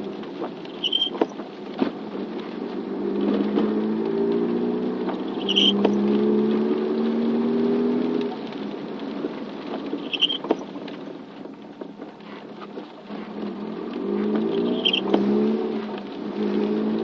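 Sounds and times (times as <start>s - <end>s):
rain pattering on vehicle: 0.0s - 17.0s
vehicle engine hum: 0.0s - 17.0s
brief high chirps: 10.1s - 10.4s.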